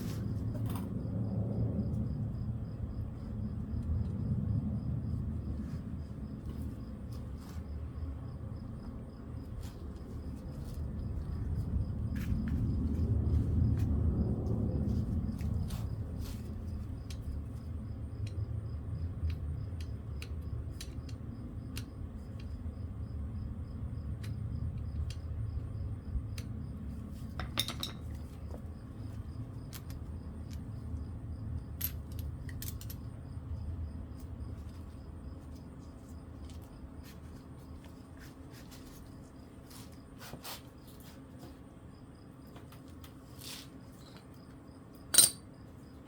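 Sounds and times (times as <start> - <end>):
steady low hum: 0.0 - 46.0
metal parts and tools clinking: 27.4 - 28.2, 31.8 - 33.1, 45.1 - 45.5.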